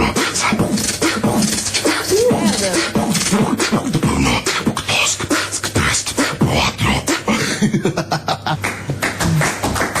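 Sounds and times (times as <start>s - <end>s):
person beatboxing: 0.0s - 7.8s.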